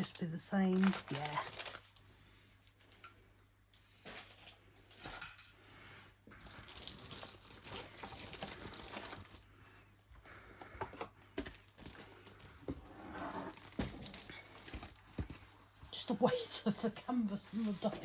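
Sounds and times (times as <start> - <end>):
plastic packaging crinkling: 0.0 - 2.0, 6.4 - 9.4, 13.2 - 15.0.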